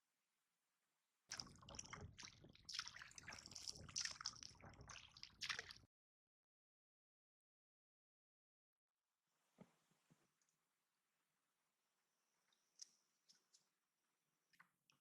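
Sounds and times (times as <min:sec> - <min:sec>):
water splashing and sloshing: 0:01.3 - 0:05.9.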